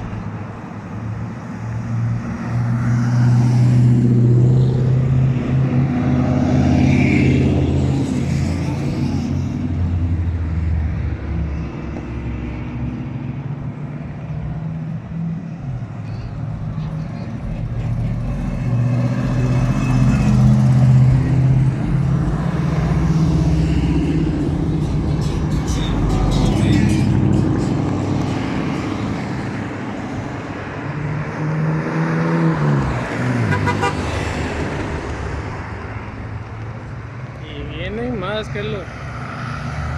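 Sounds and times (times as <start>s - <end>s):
trucks passing: 0.0s - 39.9s
truck horn: 18.0s - 20.7s, 33.4s - 34.2s.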